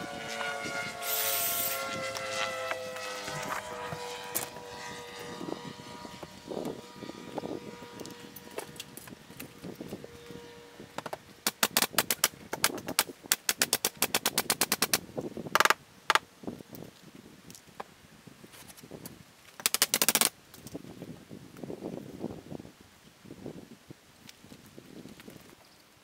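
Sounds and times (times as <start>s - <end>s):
power fastening tool clicking: 1.0s - 1.8s, 11.0s - 15.0s, 19.6s - 20.3s
tool rattling bursts: 1.0s - 2.0s, 11.4s - 15.8s, 19.6s - 20.3s.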